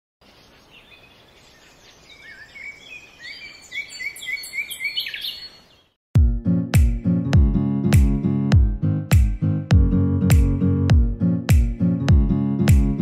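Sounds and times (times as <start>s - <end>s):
songbirds chirping: 0.2s - 6.0s
plucked string music: 6.2s - 13.0s.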